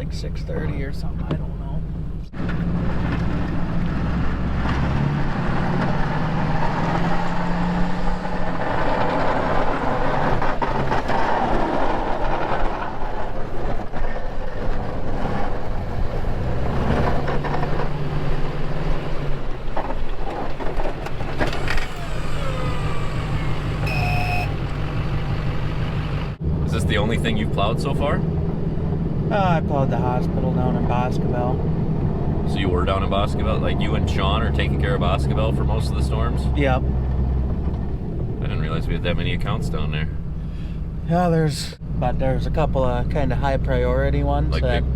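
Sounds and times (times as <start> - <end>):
truck engine running: 20.3 - 30.2.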